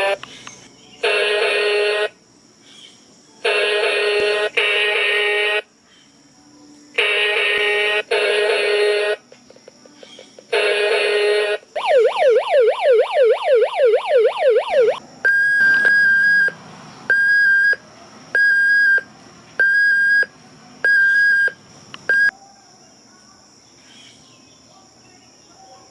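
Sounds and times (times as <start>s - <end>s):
toy siren yelping wail: 10.6s - 17.8s
high electronic beeps: 11.8s - 17.8s, 20.9s - 22.3s.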